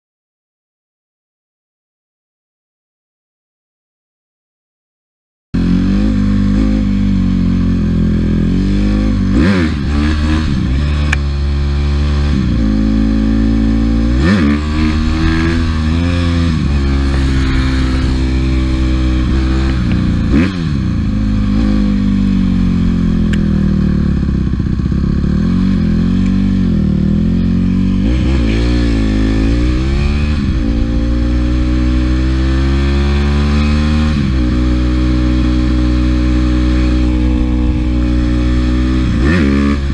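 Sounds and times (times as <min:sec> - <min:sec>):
dirt bike engine revving: 0:05.6 - 0:39.9.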